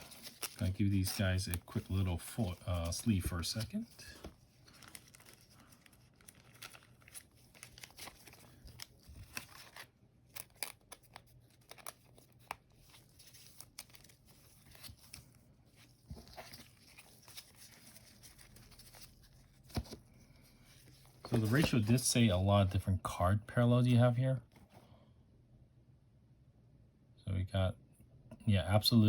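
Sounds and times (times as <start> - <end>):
plastic card sleeves crinkling: 0.0 - 22.9.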